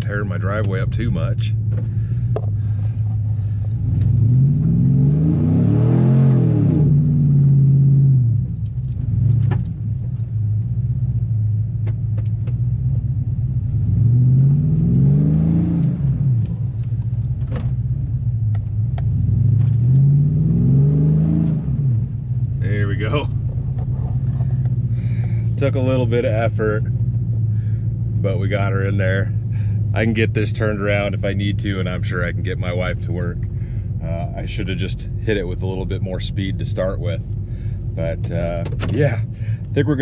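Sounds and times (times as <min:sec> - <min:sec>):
pickup engine revving: 0:01.1 - 0:09.9, 0:12.6 - 0:18.2, 0:18.8 - 0:40.0.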